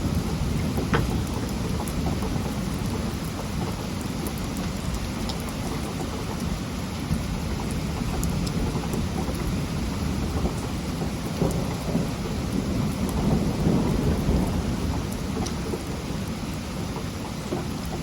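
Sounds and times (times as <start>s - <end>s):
thunder rumble: 0.0s - 3.7s, 7.9s - 17.7s
heavy rain: 0.0s - 18.0s
raindrop ticks: 0.0s - 18.0s.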